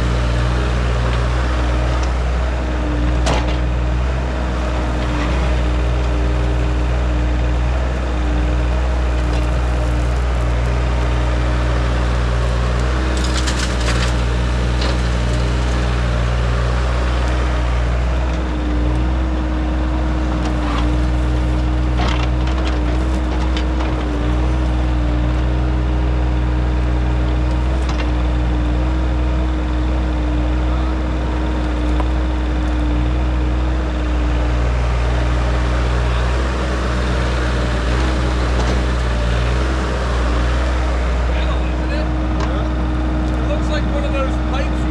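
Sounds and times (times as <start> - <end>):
earthmoving machine engine running: 0.0 - 44.9
cracks and scrapes of debris: 12.8 - 15.9.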